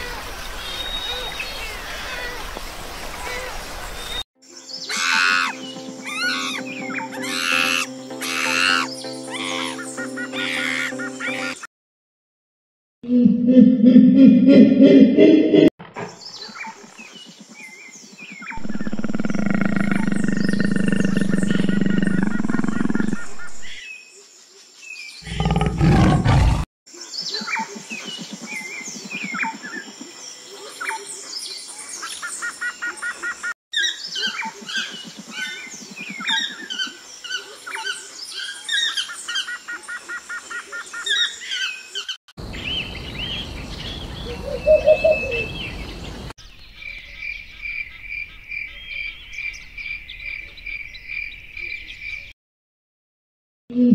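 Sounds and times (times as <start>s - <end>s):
birds chirping: 16.1s - 23.8s, 25.2s - 26.6s, 40.9s - 52.3s
tiger growling: 18.6s - 23.6s, 25.2s - 26.7s
owl call: 44.3s - 45.6s.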